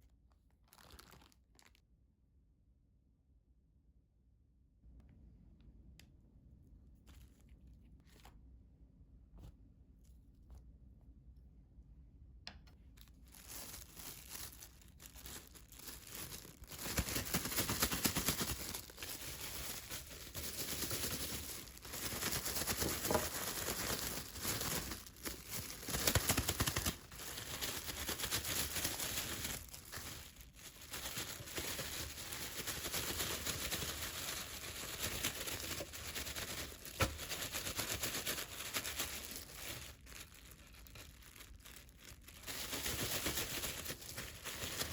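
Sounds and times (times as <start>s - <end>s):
plastic bag crinkling: 0.0s - 1.8s, 12.9s - 44.9s.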